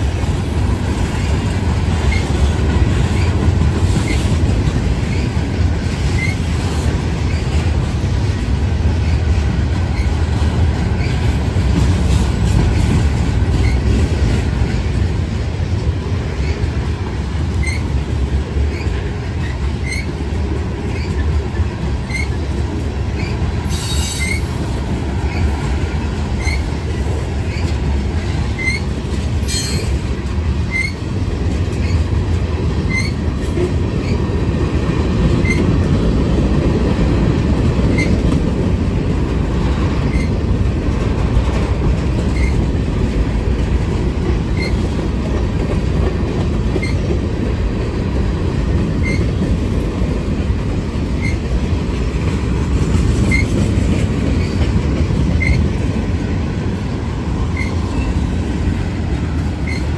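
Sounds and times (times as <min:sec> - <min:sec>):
train wheels rumbling on rails: 0:00.0 - 0:59.9
high wheel squeals: 0:17.6 - 0:17.9, 0:22.1 - 0:22.4, 0:23.2 - 0:24.5, 0:28.6 - 0:29.9, 0:30.7 - 0:31.0, 0:32.9 - 0:33.2, 0:49.0 - 0:49.3, 0:53.3 - 0:53.5, 0:59.6 - 0:59.9.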